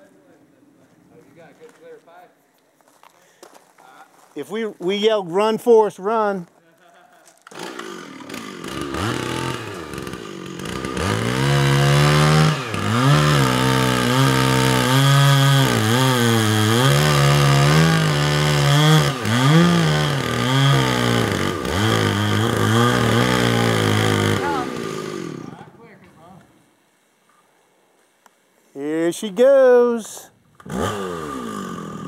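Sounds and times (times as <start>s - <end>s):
chainsaw cutting into tree trunk: 7.4s - 25.7s, 30.6s - 32.0s.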